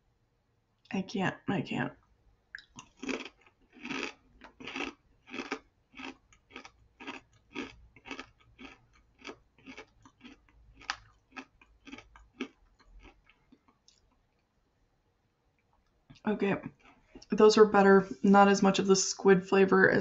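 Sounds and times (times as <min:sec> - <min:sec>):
person chewing crunchy snack: 0:02.6 - 0:14.2.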